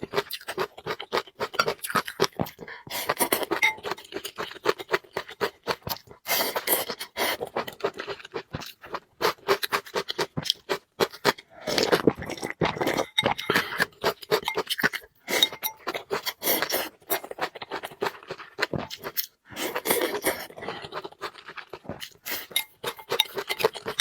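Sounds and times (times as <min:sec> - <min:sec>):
chewing noodles: 0:00.0 - 0:24.0
slurping noodles: 0:01.5 - 0:03.6, 0:05.8 - 0:07.7, 0:11.5 - 0:24.0.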